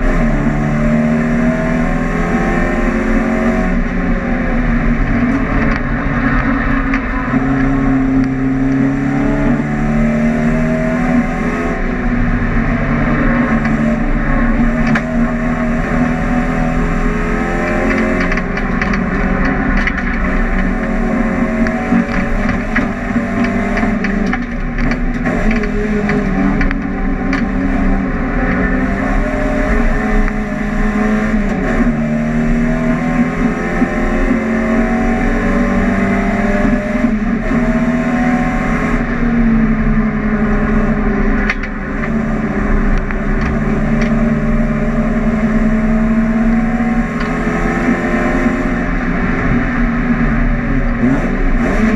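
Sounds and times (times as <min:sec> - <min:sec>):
race car engine revving: 0:00.0 - 0:51.9.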